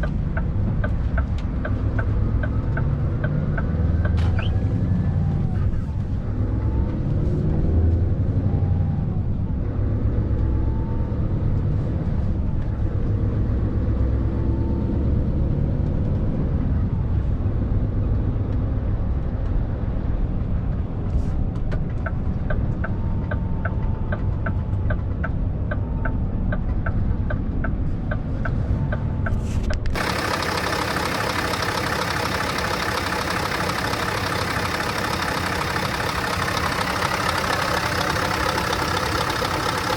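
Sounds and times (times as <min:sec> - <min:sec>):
diesel engine revving: 0:00.0 - 0:12.1, 0:28.8 - 0:39.9.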